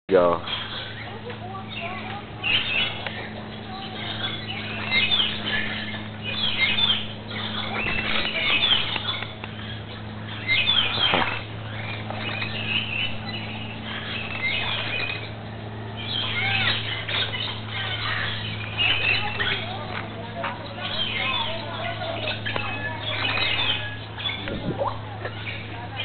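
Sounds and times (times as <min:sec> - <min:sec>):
birds chirping: 0:00.1 - 0:26.0
steady low hum: 0:00.1 - 0:26.0.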